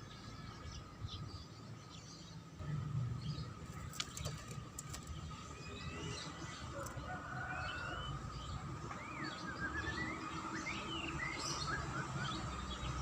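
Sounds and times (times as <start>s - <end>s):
bird singing whistled notes: 7.5s - 12.9s.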